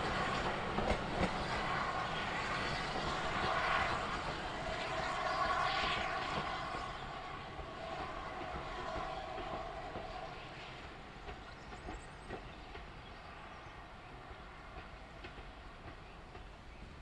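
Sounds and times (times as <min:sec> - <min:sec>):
train wheels clicking over rail joints: 0:00.1 - 0:01.6, 0:08.4 - 0:13.3.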